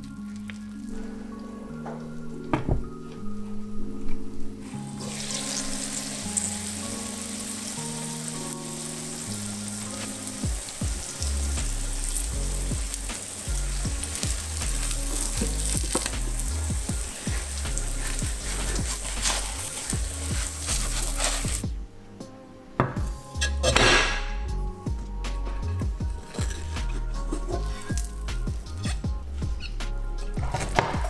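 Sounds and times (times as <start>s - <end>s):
background music with held notes: 0.0s - 31.0s
spatula scraping a pan: 4.7s - 21.6s, 25.6s - 31.0s
omelette sizzling in a frying pan: 4.8s - 21.6s.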